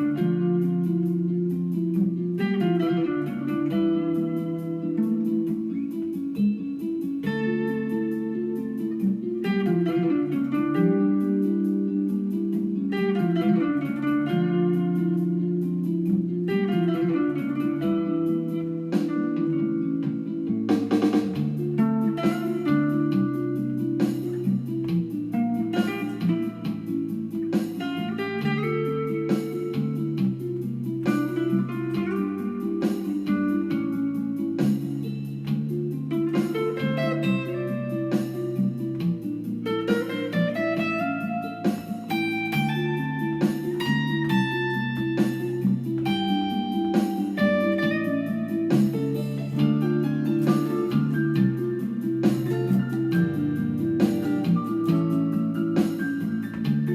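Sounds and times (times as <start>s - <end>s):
plucked guitar notes: 0.0s - 56.9s
bass line: 12.6s - 56.9s.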